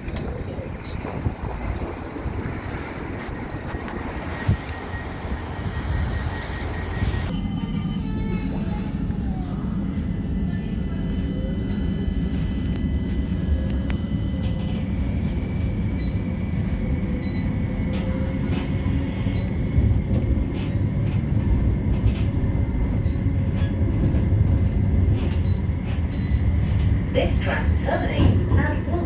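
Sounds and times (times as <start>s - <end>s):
electrical whine: 0.0s - 8.1s
tram rumbling in motion: 0.0s - 29.0s.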